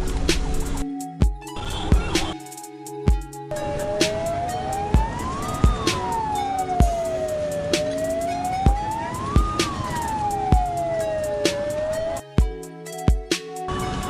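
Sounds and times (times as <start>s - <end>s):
siren wailing: 3.5s - 12.4s
music with deep bass drum hits: 5.0s - 5.8s, 6.8s - 7.2s, 8.6s - 9.7s, 10.5s - 10.9s, 12.4s - 13.3s.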